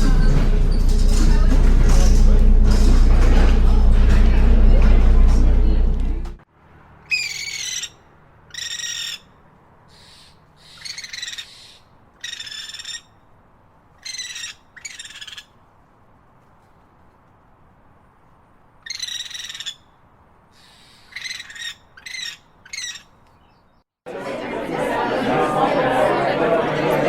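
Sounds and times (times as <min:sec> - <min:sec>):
bird calling: 0:07.0 - 0:13.2, 0:20.6 - 0:23.8.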